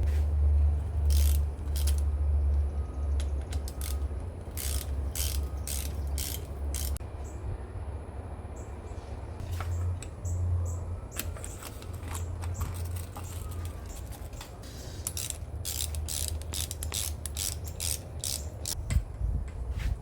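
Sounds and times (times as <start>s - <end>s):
ratcheting clicks: 1.0s - 2.1s, 3.2s - 7.0s, 11.2s - 18.8s.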